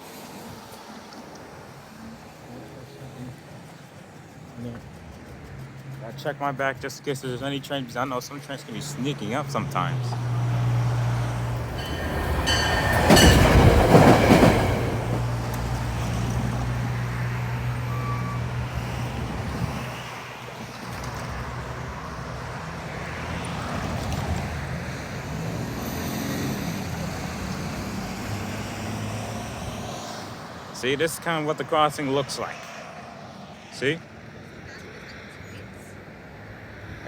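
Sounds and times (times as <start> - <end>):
road noise: 0.0 - 37.0
vehicle passing by: 0.1 - 37.0
low engine hum: 1.8 - 30.6.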